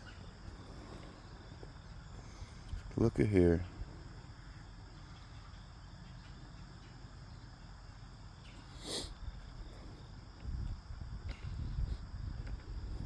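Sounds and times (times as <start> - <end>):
insects chirping: 0.0 - 13.0
low rumble on microphone: 9.2 - 13.0.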